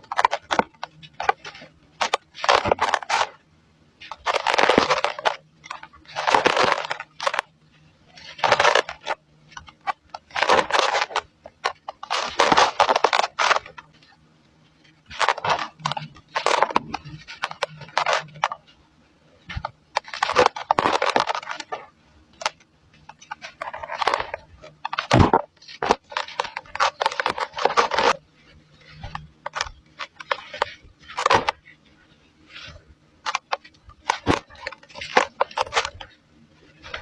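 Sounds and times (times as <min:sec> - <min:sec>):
dry cement crumbling: 0:19.5 - 0:28.2.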